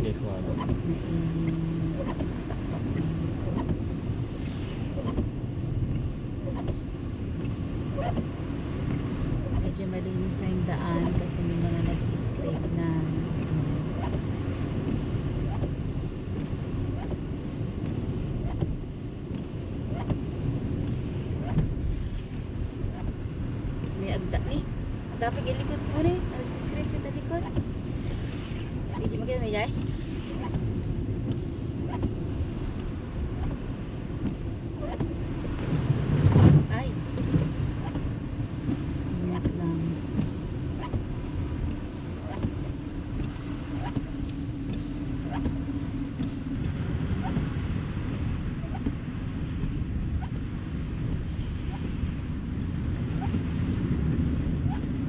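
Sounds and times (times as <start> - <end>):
car driving on snowy road: 0.0 - 55.0
faint tick: 29.7 - 32.2.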